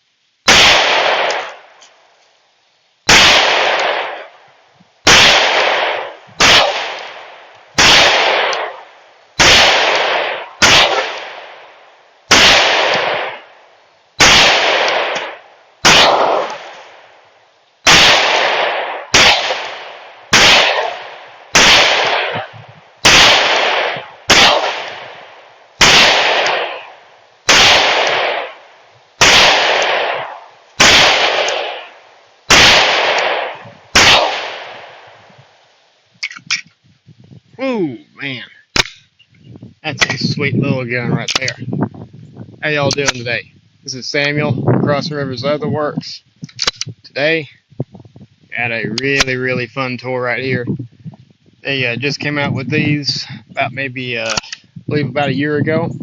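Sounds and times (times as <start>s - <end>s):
pistol shots: 0.4s - 1.7s, 3.1s - 4.4s, 5.0s - 13.6s, 14.2s - 17.2s, 17.8s - 35.1s, 38.8s - 39.1s.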